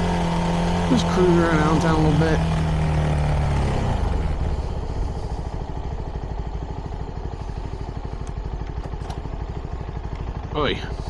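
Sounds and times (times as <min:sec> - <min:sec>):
motorcycle engine pulsing exhaust: 0:00.0 - 0:11.0.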